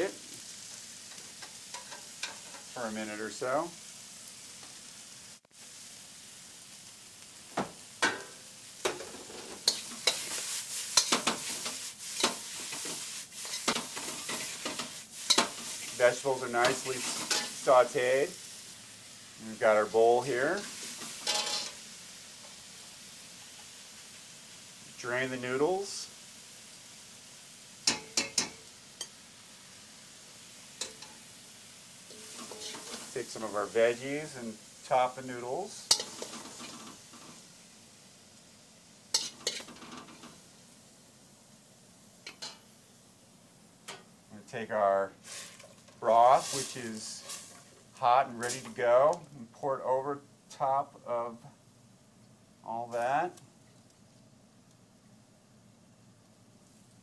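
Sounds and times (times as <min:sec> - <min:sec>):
vegetables sizzling in a wok: 0:00.0 - 0:57.0
metal spoon scraping a wok: 0:08.9 - 0:16.0, 0:16.6 - 0:17.6, 0:20.6 - 0:21.8, 0:32.1 - 0:33.1, 0:35.9 - 0:37.4, 0:39.1 - 0:40.4, 0:45.2 - 0:47.8
metallic clinks of kitchenware: 0:21.2 - 0:21.8.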